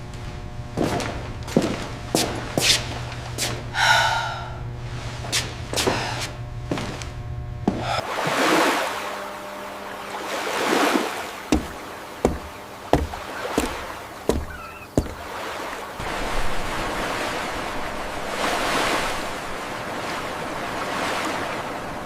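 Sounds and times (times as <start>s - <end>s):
surf-like washing noise: 7.7s - 22.0s
sharp knocks: 11.5s - 15.3s.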